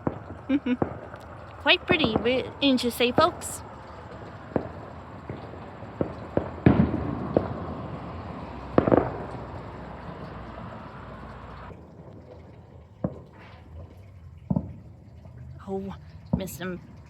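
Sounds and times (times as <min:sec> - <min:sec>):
firework bangs: 0:00.0 - 0:11.7
echoing rumble: 0:00.0 - 0:12.2.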